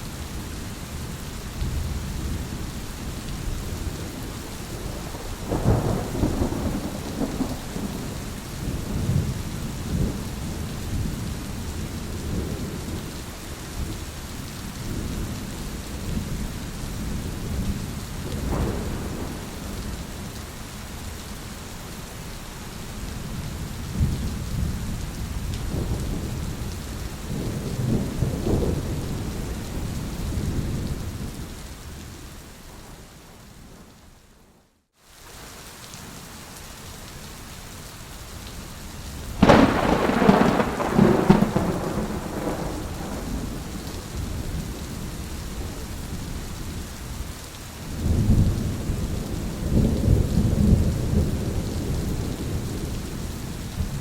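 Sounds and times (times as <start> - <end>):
steady rain: 0.0 - 54.0
thunder rumbling: 3.4 - 11.2, 17.1 - 20.4, 23.9 - 31.4, 39.4 - 46.2.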